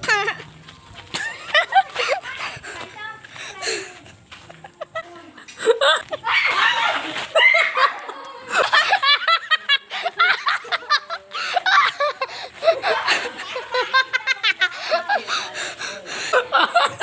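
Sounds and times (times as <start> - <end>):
people laughing and snickering: 0.0 - 17.0.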